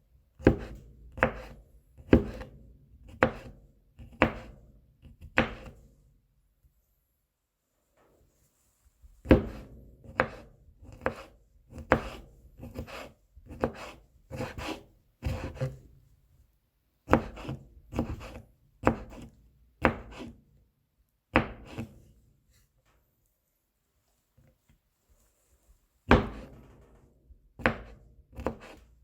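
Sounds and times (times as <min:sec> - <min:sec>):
knife chopping on cutting board: 0:00.4 - 0:02.5, 0:03.1 - 0:04.6, 0:05.2 - 0:05.8, 0:09.2 - 0:15.8, 0:17.1 - 0:20.3, 0:21.4 - 0:22.0, 0:26.1 - 0:26.6, 0:27.6 - 0:28.8
knife scraping board: 0:09.5 - 0:15.8, 0:17.1 - 0:20.4, 0:21.6 - 0:22.0, 0:28.4 - 0:28.8.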